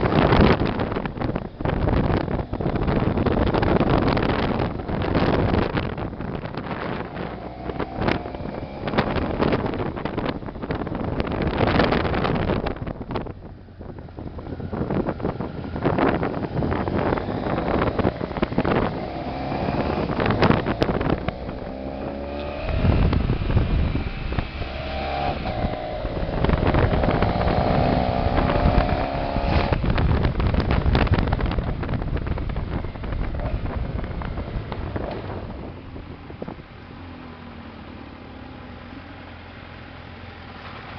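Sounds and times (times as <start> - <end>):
wind buffeting microphone: 0.0 - 37.4
motorcycle engine running: 0.0 - 40.9.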